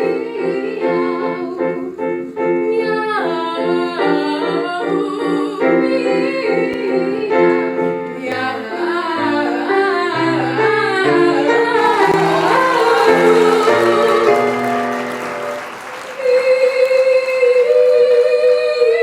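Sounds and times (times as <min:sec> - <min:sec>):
two voices singing a duet: 0:00.0 - 0:14.6, 0:16.2 - 0:19.0
piano accompaniment: 0:00.0 - 0:17.9
applause: 0:11.8 - 0:18.8.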